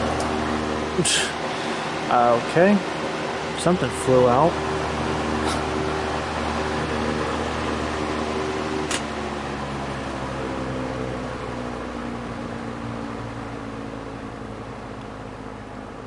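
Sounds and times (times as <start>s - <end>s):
box fan whirring: 0.0s - 16.0s
fan switch click: 8.8s - 9.2s.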